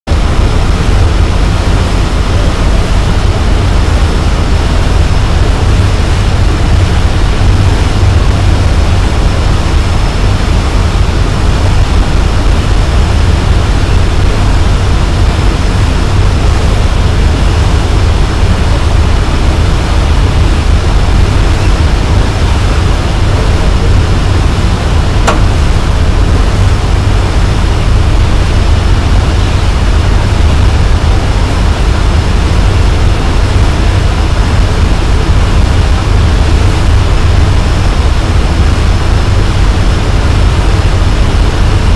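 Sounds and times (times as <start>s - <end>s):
boat engine rumble and hiss: 0.1s - 41.9s
brief click: 25.2s - 25.5s.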